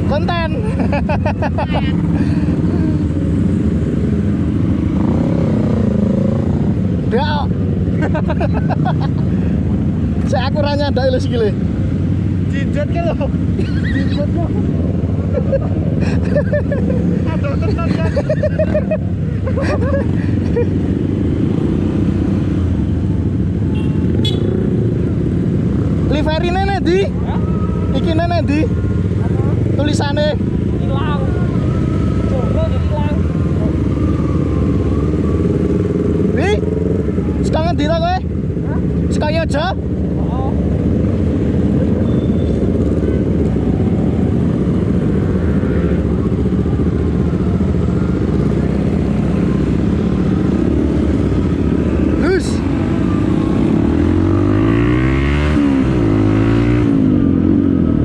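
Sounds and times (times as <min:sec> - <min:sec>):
motorcycle engine: 0:00.0 - 0:58.0
vehicle horn toot: 0:23.7 - 0:24.6.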